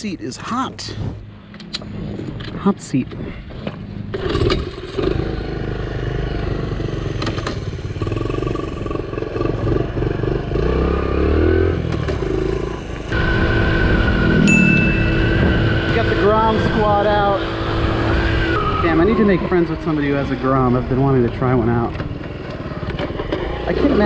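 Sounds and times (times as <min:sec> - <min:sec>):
motorcycle engine running: 0:03.8 - 0:18.8, 0:19.6 - 0:24.0.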